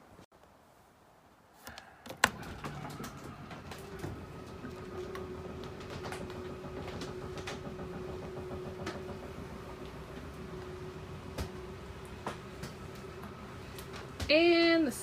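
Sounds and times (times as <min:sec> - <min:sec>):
electric motor humming: 0:03.0 - 0:14.2.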